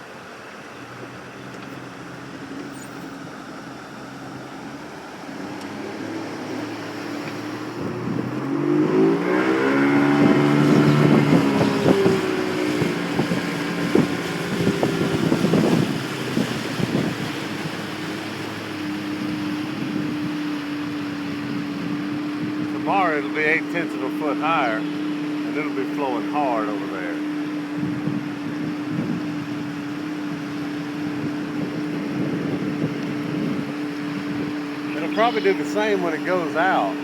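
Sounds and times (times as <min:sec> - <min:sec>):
vehicle engine running: 0:00.0 - 0:37.0
wind on microphone: 0:05.1 - 0:23.8, 0:27.0 - 0:37.0.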